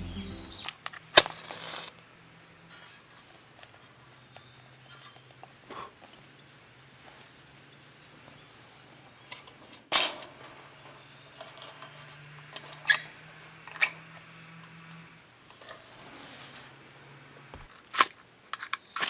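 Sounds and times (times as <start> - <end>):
faint low hum: 0.0 - 0.7.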